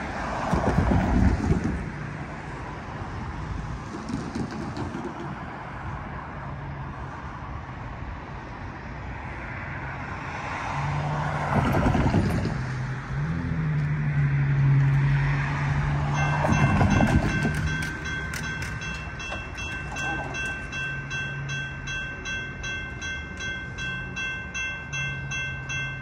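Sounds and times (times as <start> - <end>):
cars swishing on wet street: 0.0 - 20.2
diesel locomotive drone: 0.0 - 26.0
crossing warning bells: 13.2 - 26.0.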